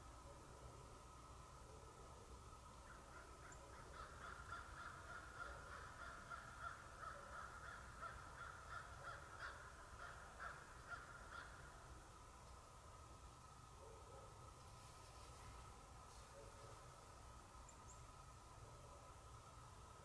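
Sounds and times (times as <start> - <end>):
crows cawing faintly: 2.7 - 12.4.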